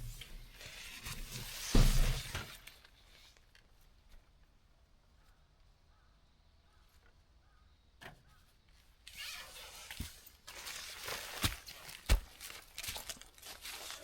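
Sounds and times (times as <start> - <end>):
tarp fabric rustling and crinkling: 9.1 - 14.0.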